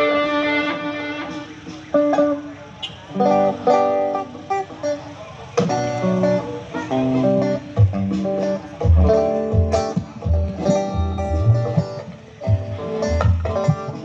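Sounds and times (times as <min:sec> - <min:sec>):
plucked guitar melody: 0:00.0 - 0:14.0
low bass: 0:07.2 - 0:13.7
drum hits: 0:07.3 - 0:14.0.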